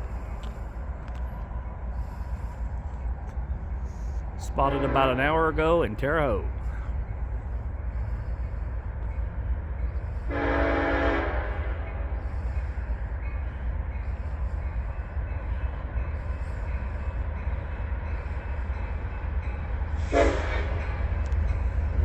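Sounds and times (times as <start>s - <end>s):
diesel locomotives rumbling: 0.0s - 22.0s
locomotive air horn blast: 4.6s - 5.2s, 10.3s - 12.1s, 20.0s - 20.8s.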